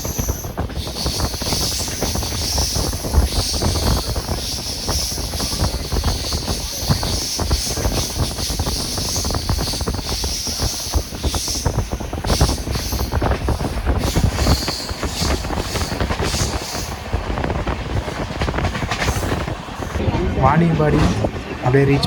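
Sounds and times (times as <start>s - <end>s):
train wheels clattering on rails: 0.0s - 20.3s
rush of wind: 0.0s - 22.0s.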